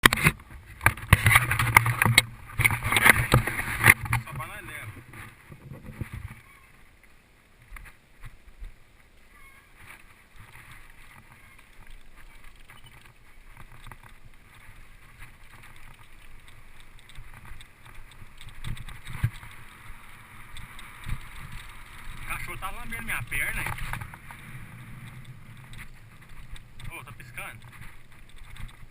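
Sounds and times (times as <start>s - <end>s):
camera handling rustle: 0.0s - 4.2s, 22.9s - 28.9s.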